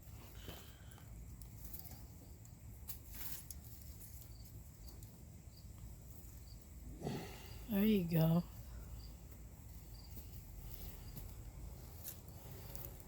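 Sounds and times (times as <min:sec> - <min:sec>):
rustle of plants: 0:00.0 - 0:05.2, 0:08.5 - 0:13.0
faint insect chirps: 0:00.3 - 0:13.0.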